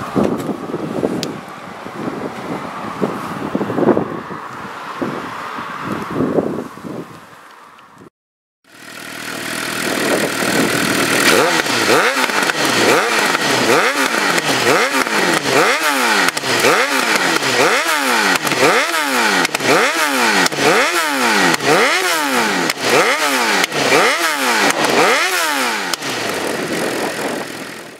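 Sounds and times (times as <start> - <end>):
motorcycle engine revving: 8.6 - 27.9.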